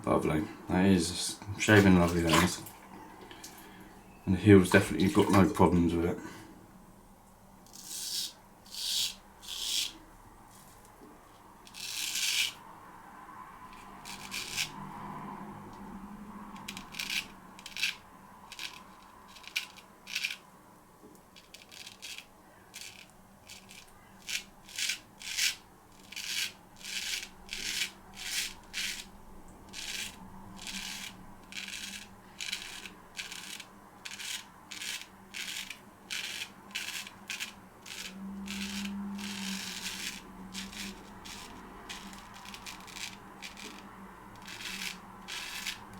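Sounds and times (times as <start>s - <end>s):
razor scraping beard stubble: 7.7s - 10.0s, 11.7s - 12.6s, 13.7s - 14.8s, 16.6s - 20.4s, 21.4s - 29.1s, 29.7s - 45.9s.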